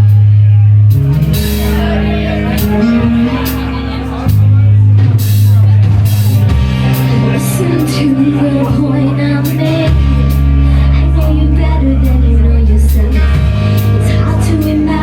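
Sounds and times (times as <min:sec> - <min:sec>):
bass notes: 0:00.0 - 0:15.0
person singing: 0:07.1 - 0:15.0.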